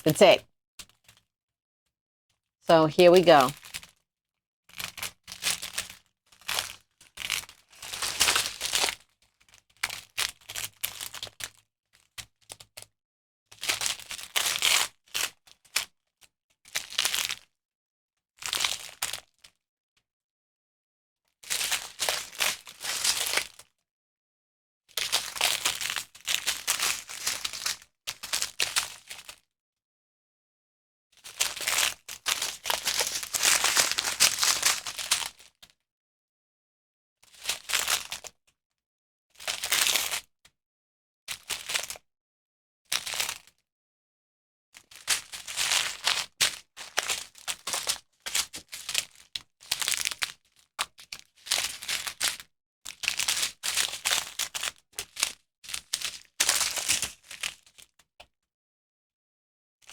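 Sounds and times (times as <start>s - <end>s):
plastic bags crinkling: 33.0s - 34.8s.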